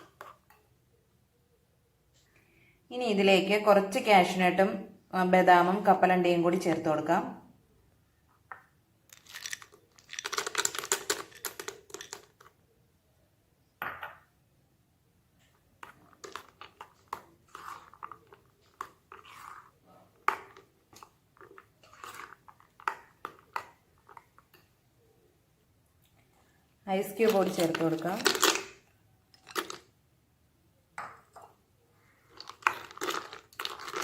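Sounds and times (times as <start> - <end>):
spoon squelching through mixture: 0.0 - 1.2, 15.4 - 30.0, 31.2 - 34.0
nuts rattling into a bowl: 9.1 - 12.5, 27.1 - 28.8, 29.4 - 29.9, 32.4 - 34.0.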